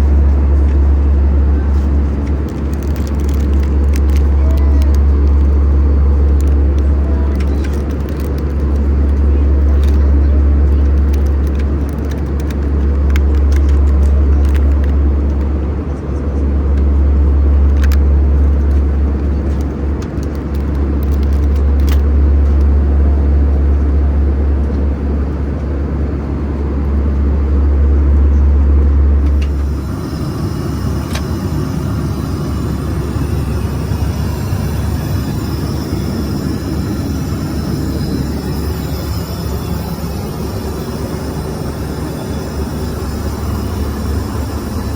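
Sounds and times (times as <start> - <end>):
vehicle interior rumble: 0.0 - 44.9
hissy drone: 29.2 - 44.9.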